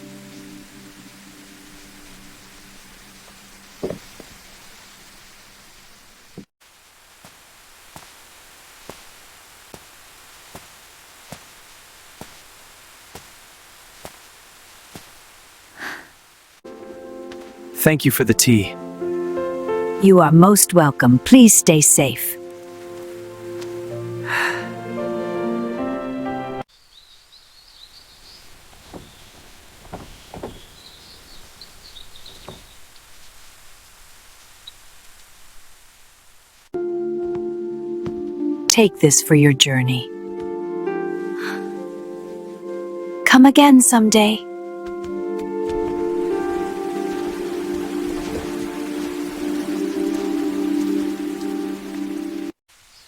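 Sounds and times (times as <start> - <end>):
steady hiss: 0.0 - 19.9, 21.4 - 25.5, 26.6 - 36.8, 40.6 - 43.1, 45.4 - 53.0
soft knocks: 3.8 - 4.4, 28.7 - 31.2, 32.3 - 32.8
small birds chirping: 26.7 - 35.0, 45.7 - 53.0.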